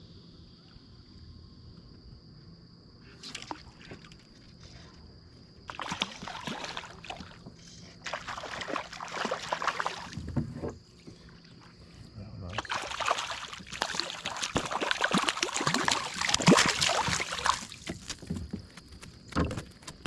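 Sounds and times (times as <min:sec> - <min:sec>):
water splashing and sloshing: 0:03.2 - 0:04.6, 0:05.6 - 0:11.5, 0:12.5 - 0:20.0.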